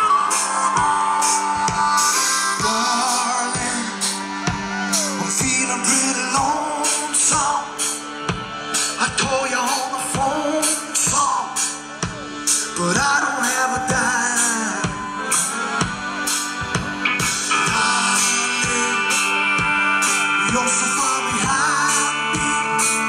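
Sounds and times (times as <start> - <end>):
drum strokes: 0.0 - 20.8
person singing: 0.0 - 23.0.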